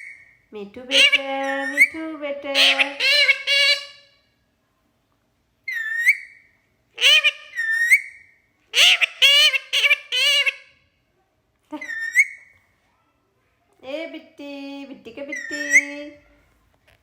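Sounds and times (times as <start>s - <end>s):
parrot chattering calls: 0.0s - 4.2s, 5.7s - 10.8s, 11.8s - 12.5s.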